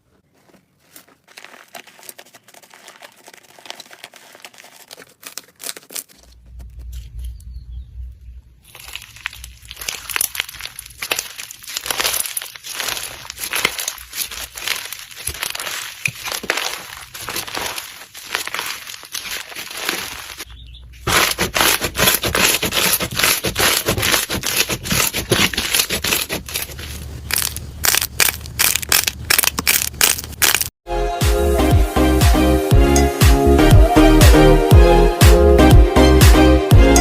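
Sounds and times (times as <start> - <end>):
slime crackling and crunching: 0.9 - 6.4, 8.6 - 30.7
music with a steady beat: 30.9 - 37.0.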